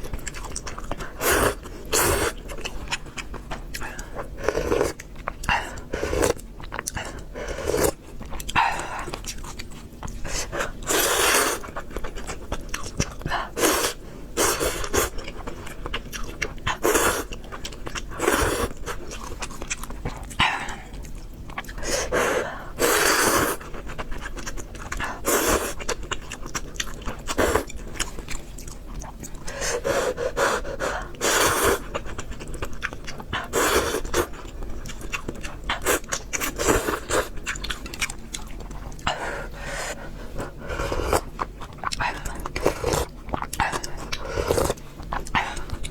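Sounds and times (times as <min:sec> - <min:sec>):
chewing: 0:00.0 - 0:45.9
heavy breathing: 0:39.1 - 0:41.2.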